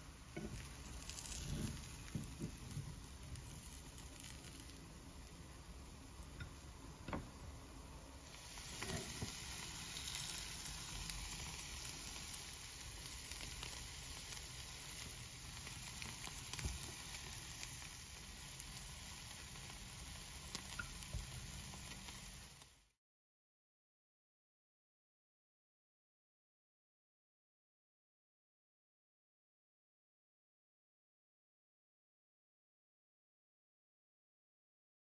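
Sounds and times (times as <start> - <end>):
patties sizzling in hot oil: 0.0 - 22.9.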